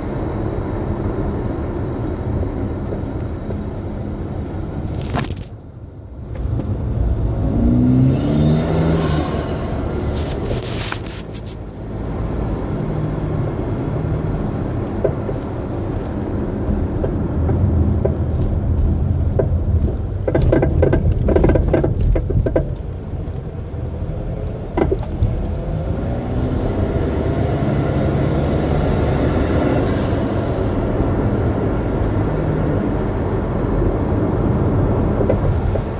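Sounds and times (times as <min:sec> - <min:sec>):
road and tyre rumble: 0:00.0 - 0:35.9
suspension knocks: 0:16.7 - 0:22.9.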